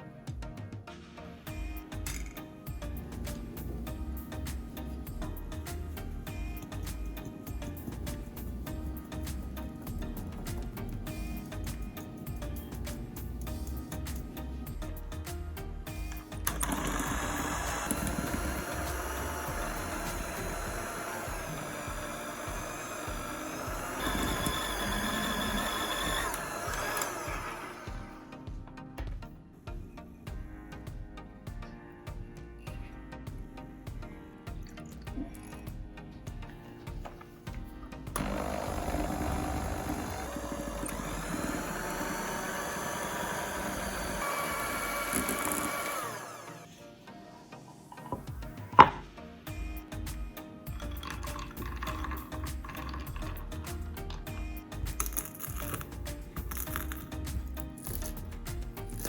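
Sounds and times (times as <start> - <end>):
kitchen appliance motor running: 16.1 - 28.1, 38.2 - 46.7, 50.8 - 54.2, 54.9 - 57.2
electric hand mixer whine: 16.4 - 28.4, 38.1 - 46.7, 50.7 - 54.4.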